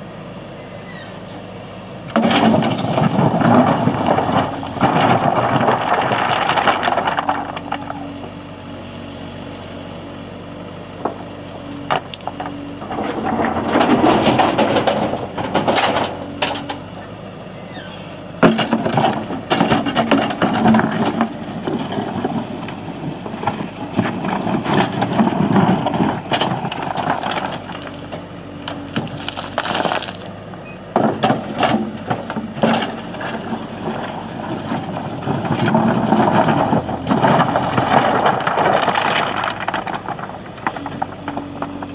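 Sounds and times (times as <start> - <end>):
diesel engine running: 0.0 - 41.9
stone clattering and crunching: 28.8 - 30.3, 31.0 - 41.9.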